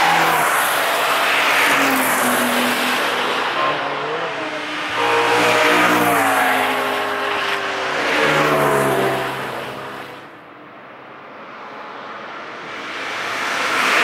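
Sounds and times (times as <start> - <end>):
cars driving past revving: 0.0 - 10.3.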